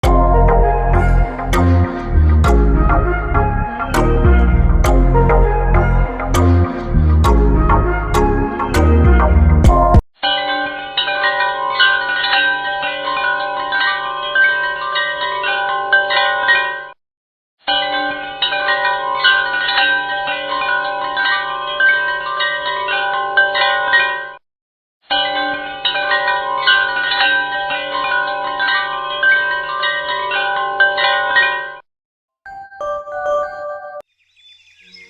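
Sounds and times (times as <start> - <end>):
chime-like bell tones music: 0.0 - 16.9, 32.5 - 34.1.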